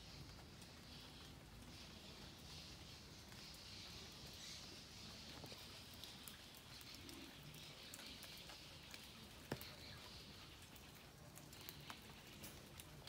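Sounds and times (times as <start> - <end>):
raindrops pattering: 0.0 - 13.0
soft steady rain hiss: 0.0 - 13.0.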